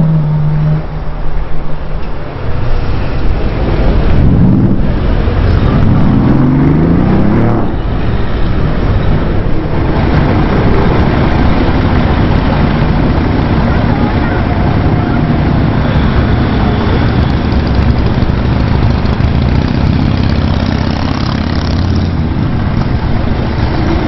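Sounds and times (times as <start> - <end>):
road noise: 0.0 - 24.0
car engines accelerating: 2.2 - 24.0.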